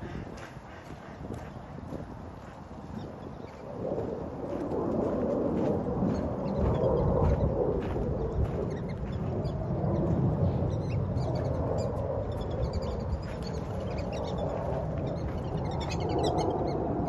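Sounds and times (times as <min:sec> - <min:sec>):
steady low rumble: 0:00.0 - 0:17.0
birds chirping: 0:08.1 - 0:17.0.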